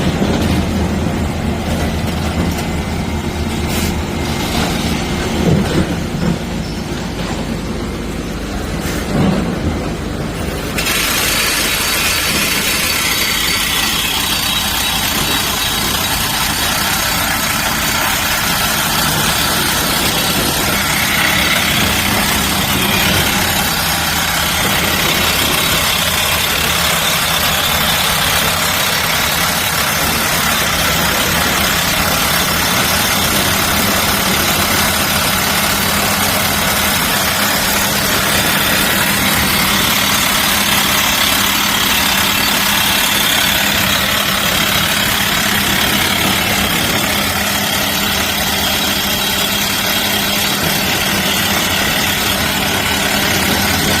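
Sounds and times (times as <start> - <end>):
heavy machinery engine running: 0.0 - 54.0.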